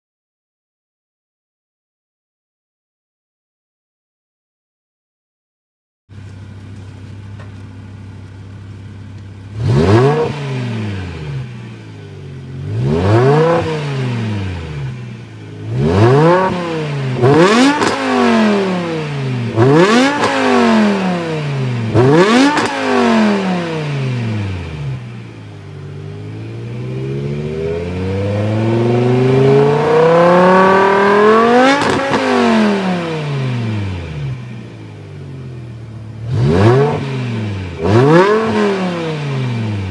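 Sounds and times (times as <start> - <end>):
car engine idling: 6.1 - 30.7, 32.6 - 38.1
engine revving: 6.8 - 39.9.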